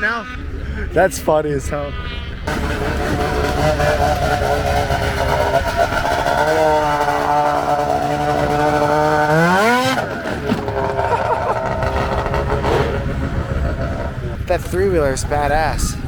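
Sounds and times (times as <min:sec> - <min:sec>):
vehicle engine revving: 0:01.7 - 0:16.0.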